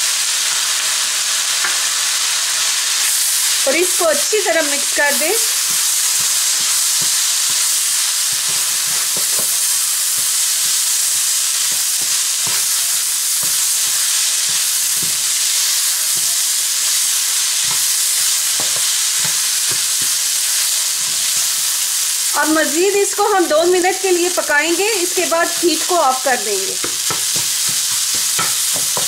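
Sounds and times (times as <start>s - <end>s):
minced meat sizzling in a pan: 0.0s - 29.0s
spatula scraping a pan: 5.4s - 21.7s.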